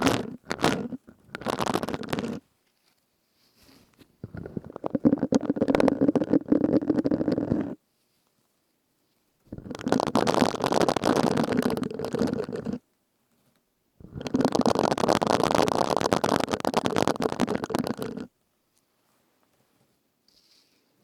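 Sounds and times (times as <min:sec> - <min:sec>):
sponge rubbed and squeezed: 0:00.0 - 0:02.4, 0:03.5 - 0:07.8, 0:09.5 - 0:12.8, 0:14.1 - 0:18.3.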